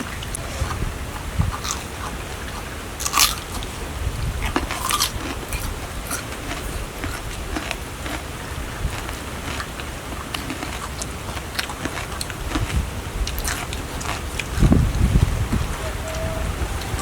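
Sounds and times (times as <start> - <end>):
steady low rumble: 0.0 - 10.3
chewing crunchy food: 0.0 - 15.2.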